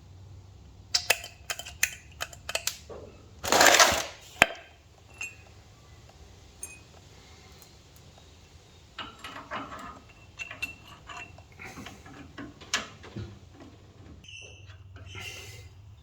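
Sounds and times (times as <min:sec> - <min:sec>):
metal tools clinking: 0:01.0 - 0:13.2.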